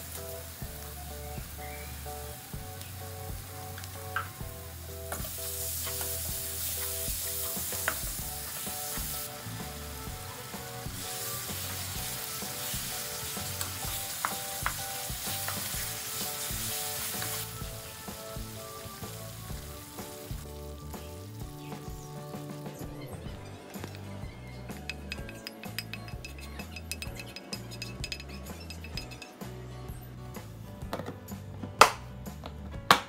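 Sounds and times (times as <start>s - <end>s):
paste sizzling in a frying pan: 0.0s - 29.4s
spoon knocking against pan: 23.3s - 29.3s.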